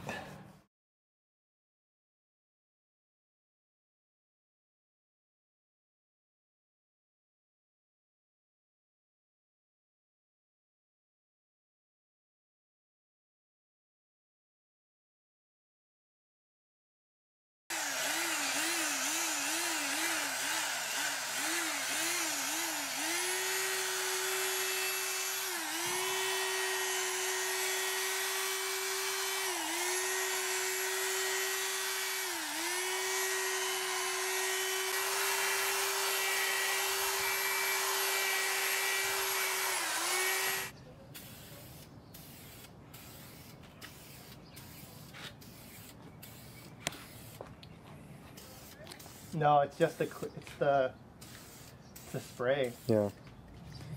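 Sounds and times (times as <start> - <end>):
electric drill sanding plastic: 17.7 - 40.7.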